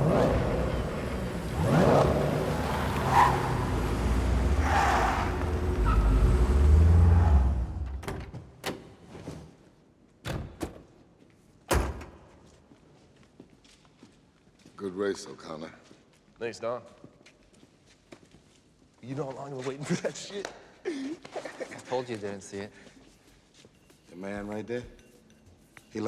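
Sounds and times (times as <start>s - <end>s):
cars whooshing past: 0.0s - 8.0s
racing car engines revving: 0.0s - 8.0s
car doors shutting: 0.0s - 8.8s.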